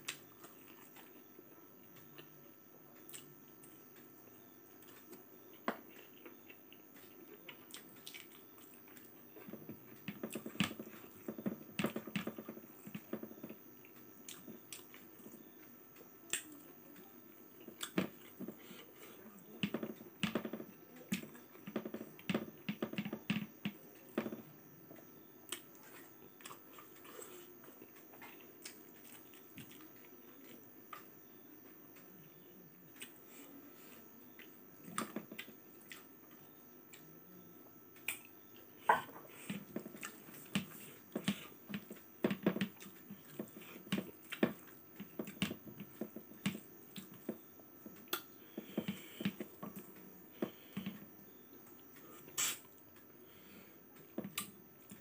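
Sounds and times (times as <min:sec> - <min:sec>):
person chewing with mouth open: 0:04.8 - 0:15.4, 0:34.3 - 0:37.1.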